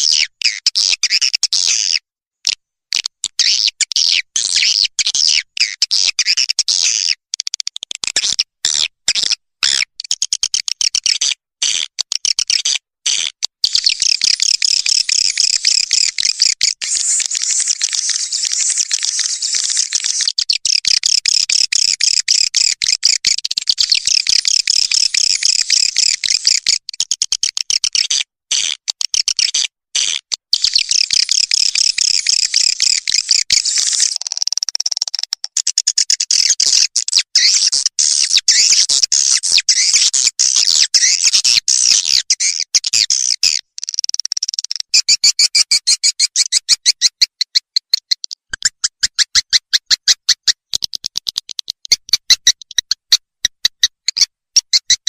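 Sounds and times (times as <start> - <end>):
swiftlets twittering chatter: 15.1 - 20.4.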